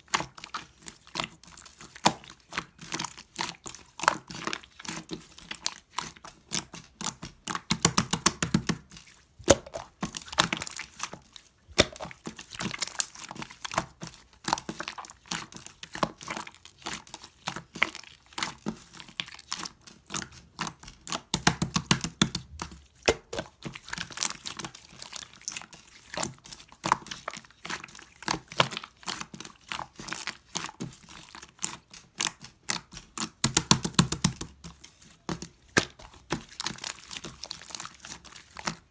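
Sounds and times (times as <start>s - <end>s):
slime squeezed by hand: 7.5s - 16.5s, 20.6s - 31.7s.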